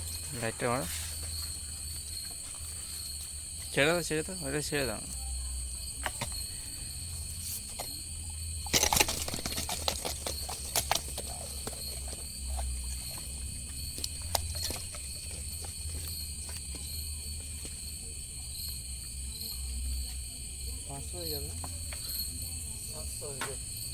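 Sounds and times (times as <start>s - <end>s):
crickets chirring: 0.0s - 23.9s.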